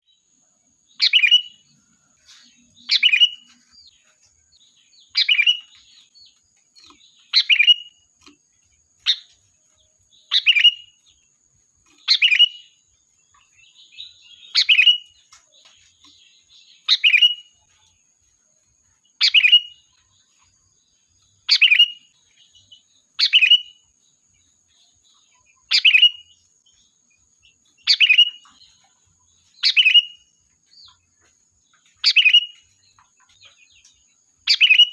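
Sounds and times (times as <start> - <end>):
bulbul calling: 0.9 - 1.7, 2.5 - 3.6, 5.0 - 6.0, 6.8 - 8.4, 10.2 - 11.0, 11.9 - 12.8, 13.8 - 15.2, 16.8 - 17.5, 19.2 - 19.8, 21.4 - 22.1, 23.2 - 23.8, 25.6 - 26.4, 27.8 - 28.6, 29.6 - 30.3, 32.0 - 33.0, 34.4 - 34.9.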